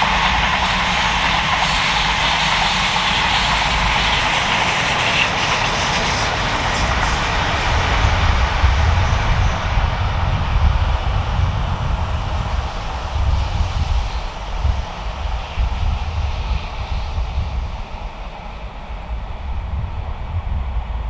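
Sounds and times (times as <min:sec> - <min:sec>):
train passing: 0:00.0 - 0:21.0
heavy low rumble: 0:07.3 - 0:21.0.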